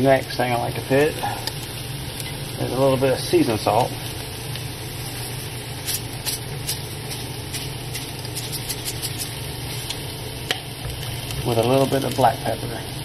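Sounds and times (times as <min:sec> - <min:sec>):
fish sizzling on a griddle: 0:00.0 - 0:13.0
small crackles: 0:03.7 - 0:12.4.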